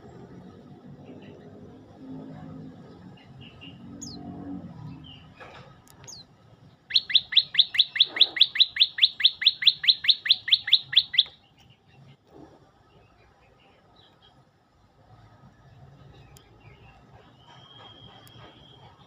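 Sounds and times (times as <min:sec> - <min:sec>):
bird trilling: 0:06.9 - 0:11.4
faint bird chirps: 0:06.9 - 0:12.2.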